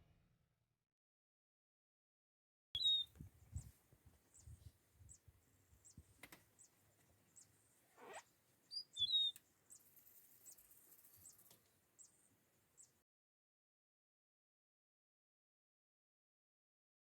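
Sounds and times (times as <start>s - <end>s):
bird chirping: 2.8s - 13.0s.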